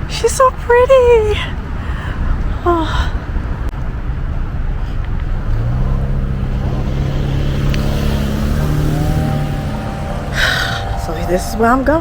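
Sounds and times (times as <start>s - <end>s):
road noise: 0.0s - 12.0s
vehicle engine hum: 0.0s - 12.0s
high whine: 5.4s - 12.0s.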